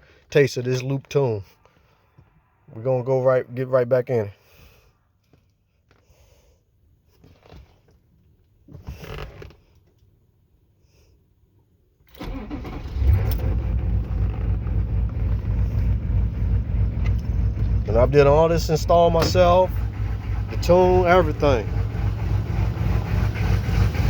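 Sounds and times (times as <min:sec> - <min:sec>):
diesel engine starting and running: 0:12.1 - 0:24.0.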